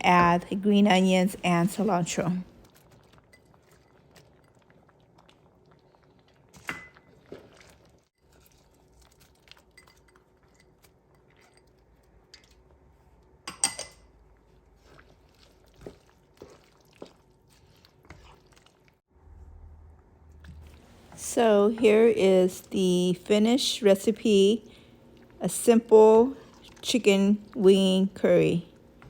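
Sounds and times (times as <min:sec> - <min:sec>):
utensils clinking against pot: 0:13.5 - 0:14.1
faint steady hum: 0:19.2 - 0:29.0.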